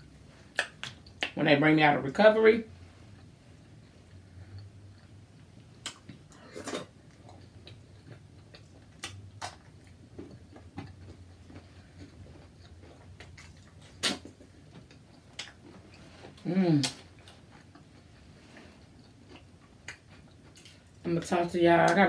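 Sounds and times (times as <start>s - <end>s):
faint low hum: 0.0s - 22.0s
eating clicks and smacks: 0.5s - 1.4s, 4.6s - 6.4s, 7.1s - 15.7s.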